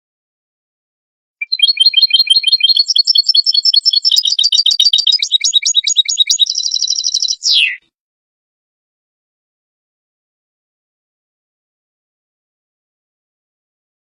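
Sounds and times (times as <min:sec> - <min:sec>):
bird twittering song: 0:01.4 - 0:07.8.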